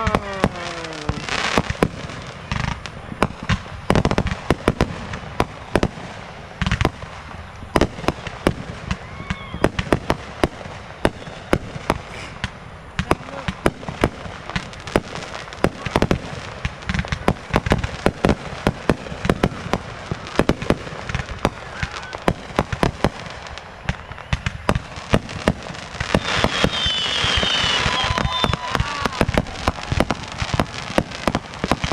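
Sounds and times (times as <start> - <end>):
fireworks bangs: 0.0 - 31.9
dense hiss: 11.9 - 13.6
high whistles: 23.8 - 24.6, 26.0 - 30.6.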